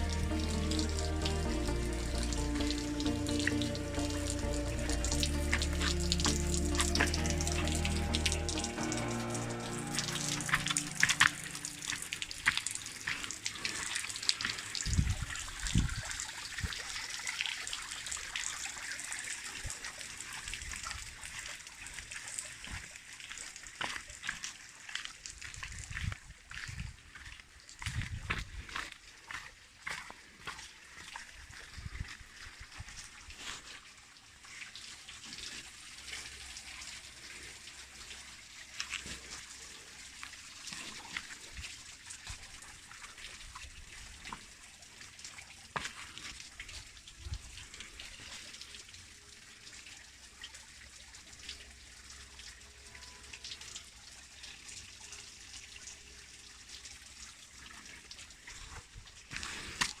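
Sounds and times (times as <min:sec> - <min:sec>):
waterfall splashing into pond: 0:00.0 - 0:26.6, 0:29.0 - 1:00.0.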